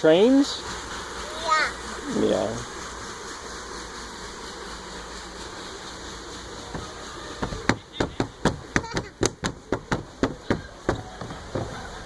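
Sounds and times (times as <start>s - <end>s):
water rushing around boat: 0.0s - 12.0s
sharp knocks: 7.4s - 11.8s.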